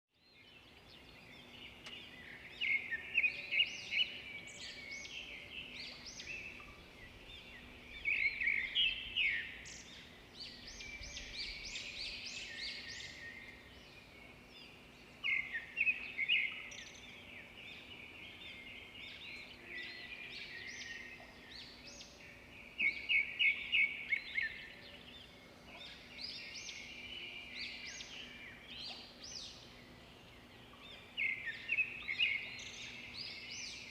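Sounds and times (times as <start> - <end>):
small birds chirping: 0.2 - 33.9.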